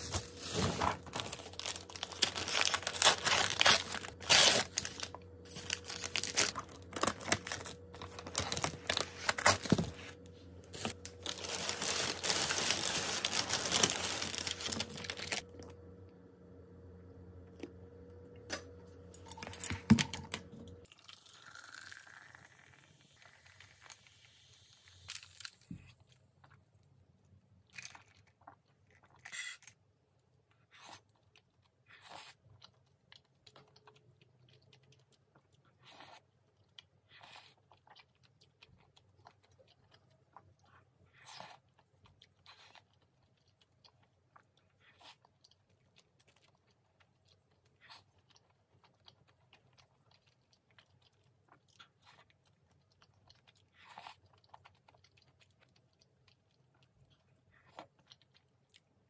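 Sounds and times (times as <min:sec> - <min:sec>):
steady hum: 0:00.0 - 0:20.9
crunchy chewing: 0:30.6 - 0:59.0.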